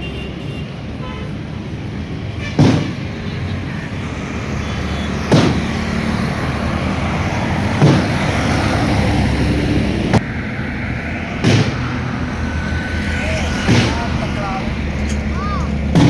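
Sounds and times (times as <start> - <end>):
heavy vehicle engines passing: 0.0 - 16.0
loud thumps: 2.5 - 3.4, 5.2 - 8.9, 11.1 - 16.0.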